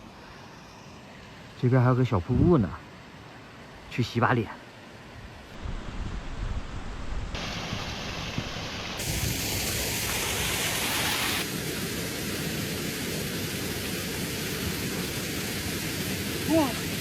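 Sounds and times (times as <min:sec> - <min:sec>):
waterfall rushing: 0:07.4 - 0:17.0.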